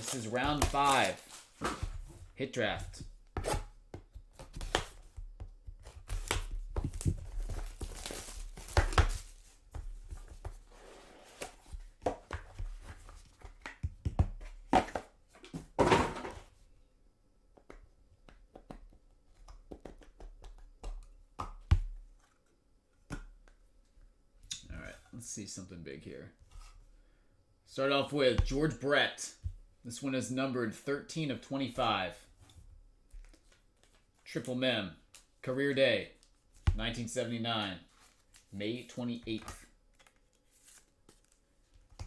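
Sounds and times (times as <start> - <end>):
wrapper tearing and crinkling: 0.0 - 1.6, 7.2 - 9.4
cardboard thunks and scrapes: 0.0 - 2.3, 15.6 - 16.4.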